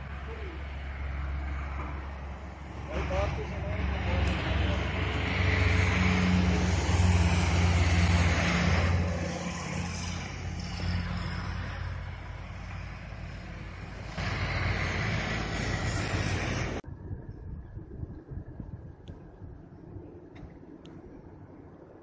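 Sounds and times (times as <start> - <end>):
wheels hissing on rails: 0.0 - 16.8
train rumbling along track: 0.0 - 16.9
rushing noise: 0.0 - 18.5.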